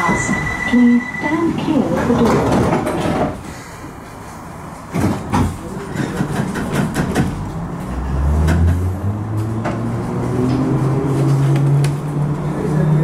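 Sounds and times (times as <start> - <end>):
train running noise: 0.0 - 13.0
knocks and clunks: 1.9 - 3.4, 4.9 - 7.5.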